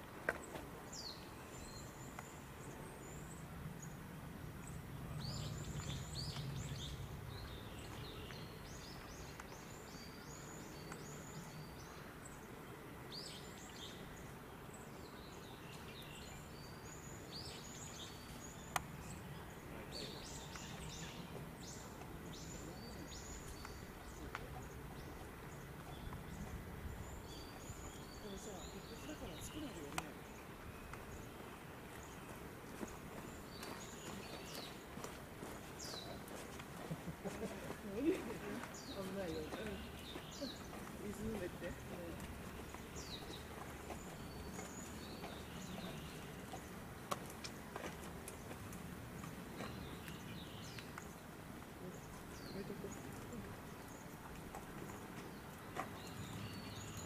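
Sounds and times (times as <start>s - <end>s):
outdoor background noise: 0.0s - 57.0s
steady low background noise: 0.0s - 57.0s
small birds chirping: 0.2s - 57.0s.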